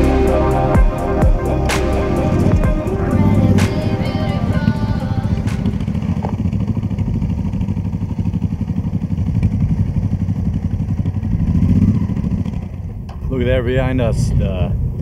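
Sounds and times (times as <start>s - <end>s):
motorcycle engine cruising: 0.0s - 14.2s.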